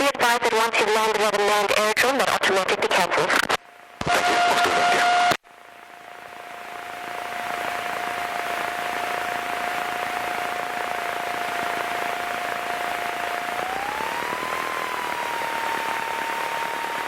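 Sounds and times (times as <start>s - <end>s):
thin whine: 2.5s - 17.0s
aircraft engine and propeller drone: 5.5s - 17.0s.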